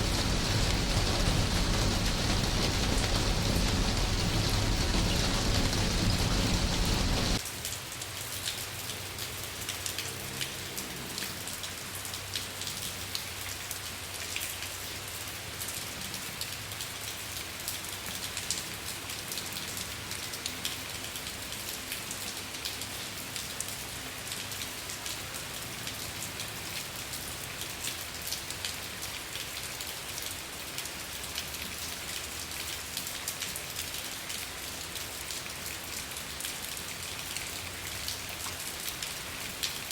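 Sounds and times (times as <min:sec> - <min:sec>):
deep rushing noise: 0:00.0 - 0:07.4
rain pattering: 0:00.0 - 0:39.9.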